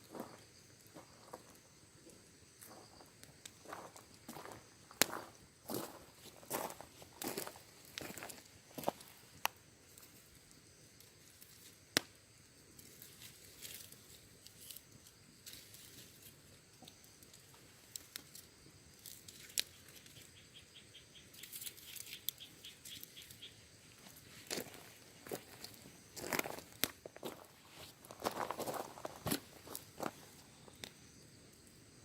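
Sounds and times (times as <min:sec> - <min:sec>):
small ticks: 0:02.6 - 0:05.9, 0:12.7 - 0:23.5, 0:30.7 - 0:31.8
wood fire crackling: 0:03.1 - 0:20.4, 0:21.4 - 0:31.8.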